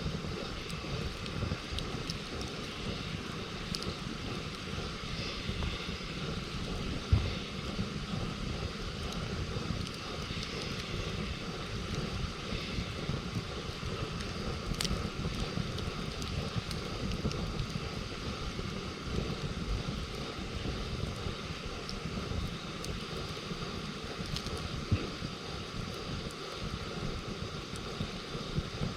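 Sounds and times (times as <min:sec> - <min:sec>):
campfire crackling: 0:00.0 - 0:28.9
steady low rumble: 0:00.0 - 0:28.9
fire pop: 0:08.8 - 0:27.0.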